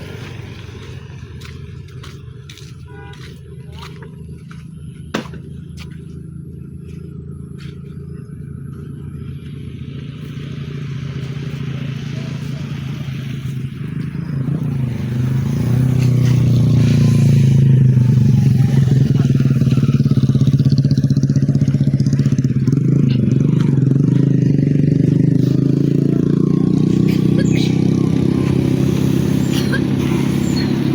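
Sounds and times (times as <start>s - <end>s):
truck diesel engine running: 0.0s - 30.9s.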